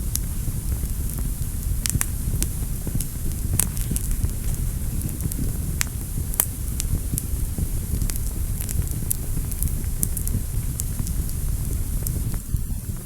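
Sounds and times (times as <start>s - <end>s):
fire crackling and popping: 0.0s - 13.0s
low fire rumble: 0.0s - 13.0s.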